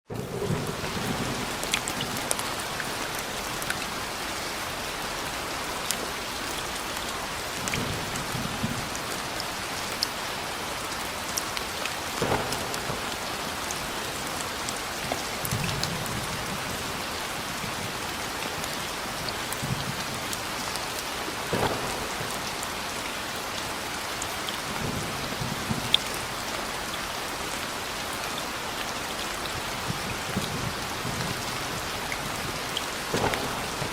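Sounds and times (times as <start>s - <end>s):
thunder rumbling: 0.1s - 5.1s, 12.2s - 14.3s, 21.4s - 22.6s, 29.5s - 33.9s
rain pattering: 0.1s - 33.9s.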